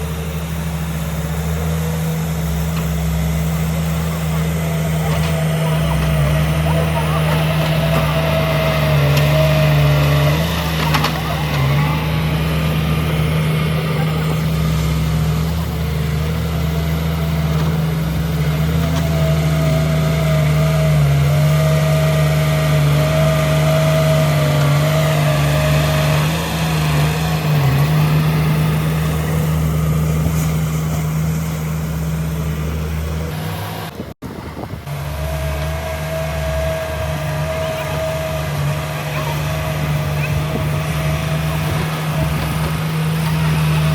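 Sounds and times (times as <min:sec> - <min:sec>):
heavy diesel engine: 0:00.0 - 0:43.9
high machine whine: 0:00.0 - 0:43.9.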